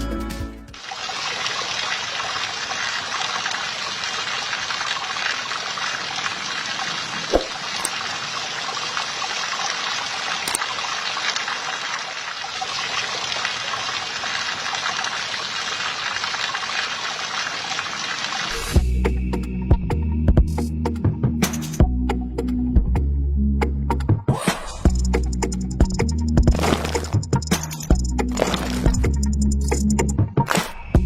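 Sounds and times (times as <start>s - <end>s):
liquid trickling and splashing: 0.8s - 18.8s, 26.5s - 27.2s, 28.3s - 29.0s.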